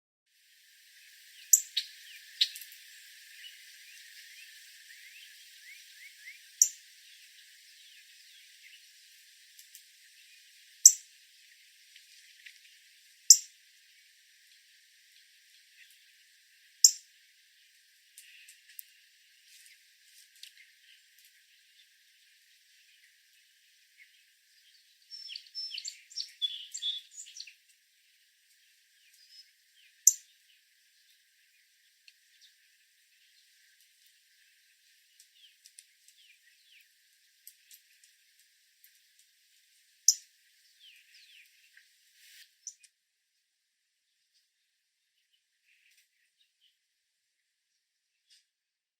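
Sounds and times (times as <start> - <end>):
faint bird chirps: 1.3 - 9.0, 10.1 - 11.1, 13.3 - 13.6, 22.8 - 27.7, 29.0 - 33.6, 42.6 - 42.9
cardinal chip calls: 1.4 - 3.6, 25.1 - 27.5.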